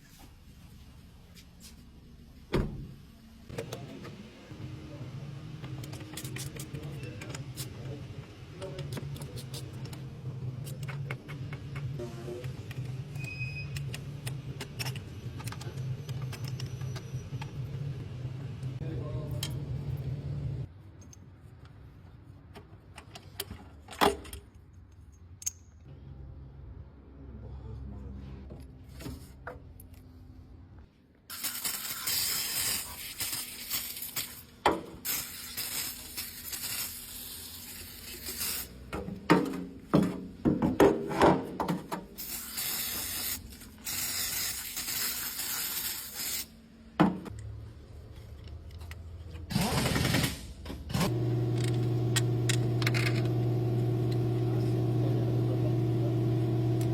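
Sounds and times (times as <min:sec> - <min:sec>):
tools clicking and scraping: 0:05.7 - 0:07.7, 0:10.6 - 0:17.6, 0:20.9 - 0:25.9, 0:47.3 - 0:53.3
hiss: 0:42.2 - 0:46.5
motor humming: 0:51.0 - 0:56.9.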